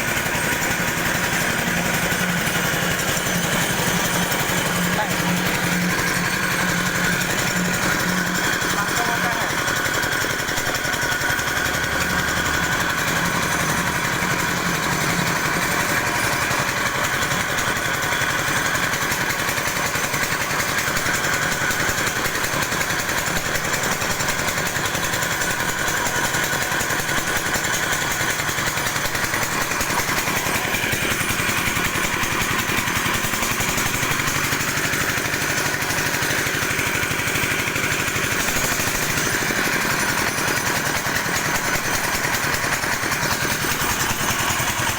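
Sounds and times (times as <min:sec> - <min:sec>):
machine whine: 0:00.0 - 0:18.5
pellet mill mechanical rattle: 0:00.0 - 0:44.9.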